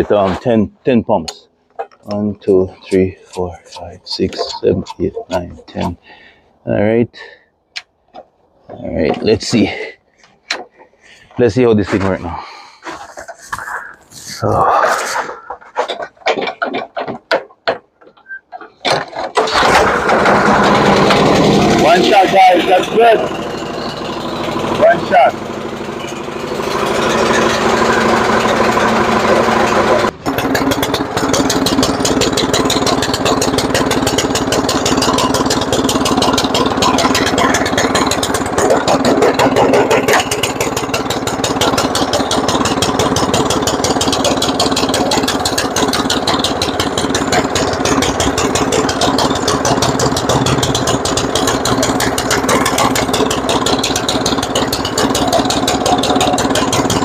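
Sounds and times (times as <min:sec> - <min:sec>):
snowblower engine running: 0:01.8 - 0:06.5, 0:19.3 - 0:57.0.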